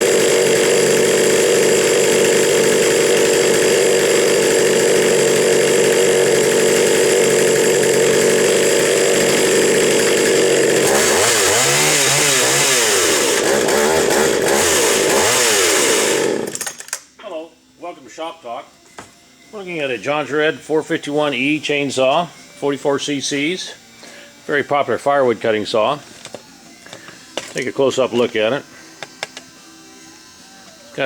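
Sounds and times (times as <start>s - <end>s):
chainsaw engine revving: 0.0s - 17.0s.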